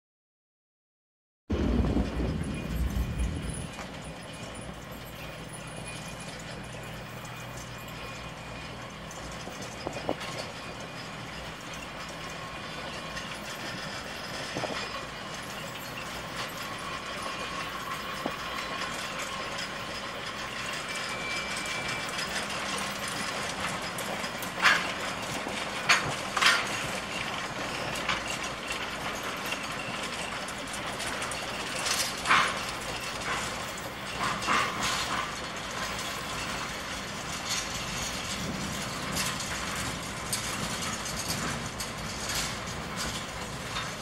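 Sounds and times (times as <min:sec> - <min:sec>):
sharp metallic clanks: 0:01.5 - 0:44.0
train rolling past on rails: 0:01.5 - 0:44.0
faint wheel squeal: 0:02.3 - 0:23.3.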